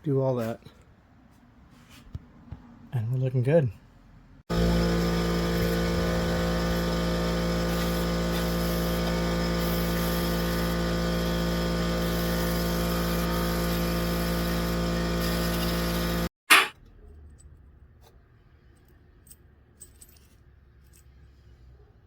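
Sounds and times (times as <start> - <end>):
power tool motor humming: 4.5 - 16.3.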